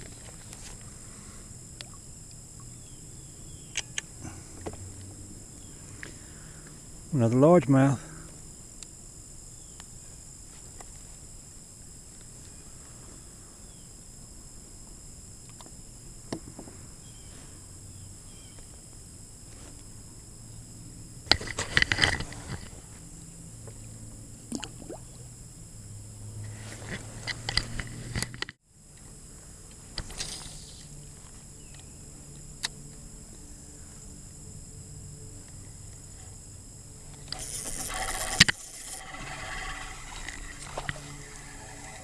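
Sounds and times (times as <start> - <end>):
insects droning: 0.0 - 42.0
knocking and scraping on kayak hull: 37.6 - 42.0.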